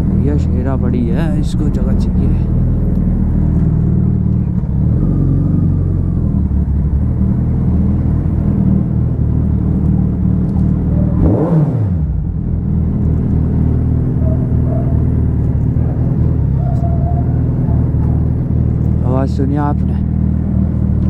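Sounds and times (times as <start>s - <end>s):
vehicle passing by: 0.0s - 8.2s, 13.0s - 20.9s
motorcycle engine running: 0.0s - 21.0s.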